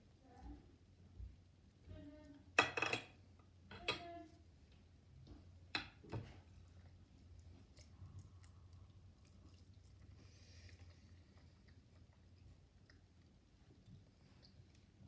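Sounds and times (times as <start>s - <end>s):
cutlery clinking on a dish: 2.6s - 4.1s.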